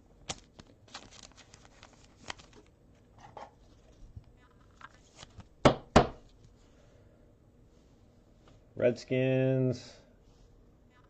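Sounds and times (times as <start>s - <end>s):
cards clicking and rustling: 0.3s - 2.7s.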